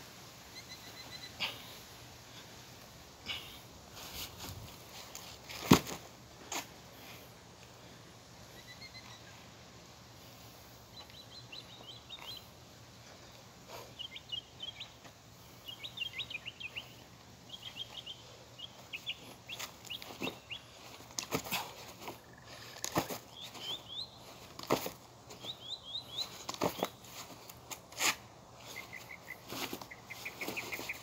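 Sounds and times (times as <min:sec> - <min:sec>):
bird chirping: 0:00.5 - 0:01.5, 0:08.6 - 0:09.4, 0:10.9 - 0:12.6, 0:13.8 - 0:15.0, 0:15.6 - 0:21.0, 0:22.1 - 0:24.5, 0:25.3 - 0:27.1, 0:28.6 - 0:31.0.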